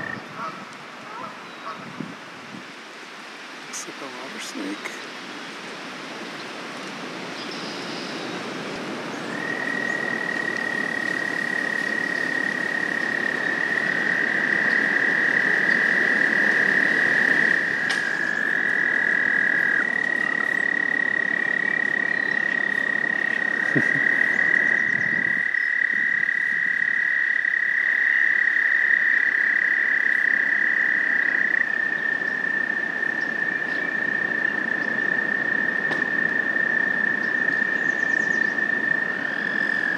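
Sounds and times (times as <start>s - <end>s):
lower toad trill: 9.3s - 39.9s.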